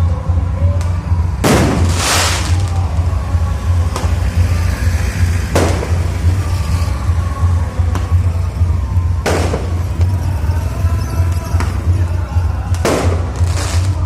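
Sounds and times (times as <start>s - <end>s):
constant low throb: 0.0s - 14.0s
fireworks bursting with crackle: 0.7s - 14.0s
sharp firework bangs: 1.4s - 2.9s, 5.5s - 6.4s, 9.2s - 10.1s, 12.6s - 14.0s.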